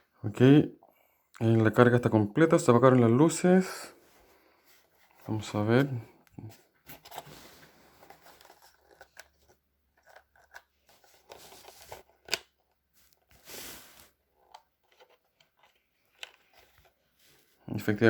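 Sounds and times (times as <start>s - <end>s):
short scrape: 13.4s - 14.1s.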